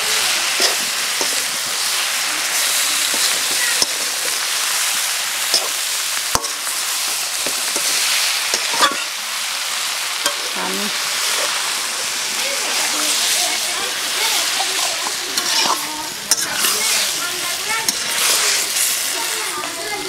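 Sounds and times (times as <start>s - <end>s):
fish sizzling in hot oil: 0.0s - 20.0s
metal spatula scraping a pan: 0.4s - 1.6s, 5.4s - 6.8s, 7.4s - 9.2s, 10.2s - 11.7s, 14.3s - 19.1s.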